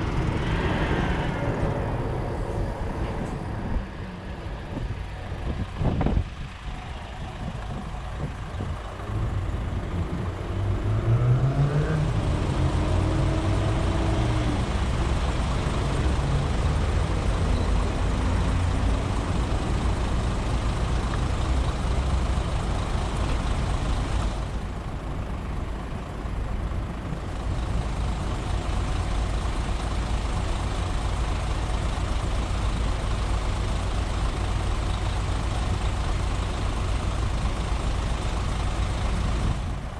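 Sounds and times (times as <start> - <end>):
vehicle engine passing: 0.0 - 4.9, 9.2 - 19.9
wind and tyre noise: 0.0 - 39.9.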